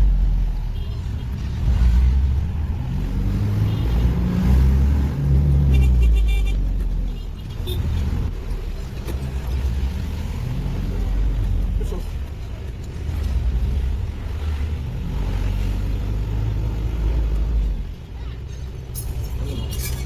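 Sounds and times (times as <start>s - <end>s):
vehicle engine and road rumble: 0.0s - 20.0s.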